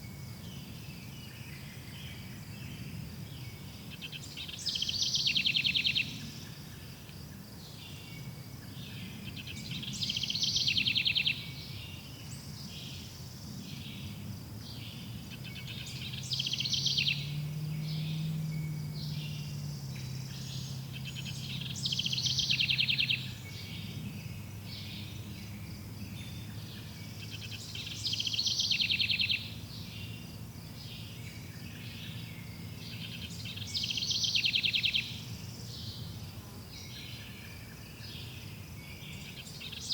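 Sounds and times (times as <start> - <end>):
faint bird chirping: 0.0 - 39.9
songbird trilling: 9.4 - 11.5, 14.8 - 25.4, 26.2 - 30.2, 30.9 - 35.2.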